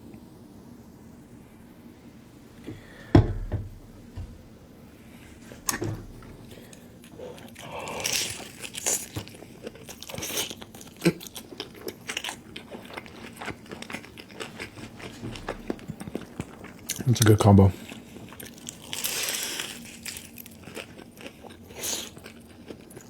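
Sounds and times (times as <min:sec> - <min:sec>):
crisp crunching and chewing: 0:06.6 - 0:23.0.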